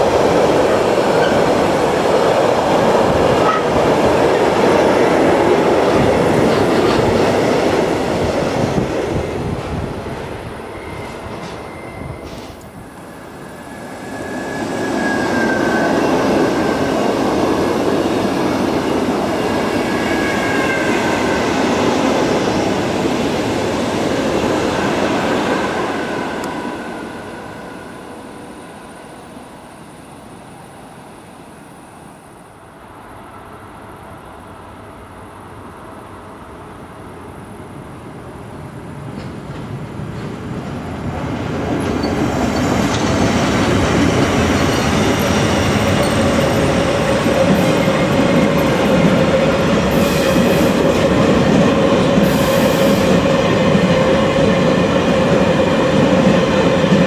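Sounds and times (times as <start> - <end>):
freight train rolling past: 0.0 - 57.0
passenger train passing: 0.0 - 57.0
high wheel squeal: 10.6 - 12.6, 13.4 - 16.9.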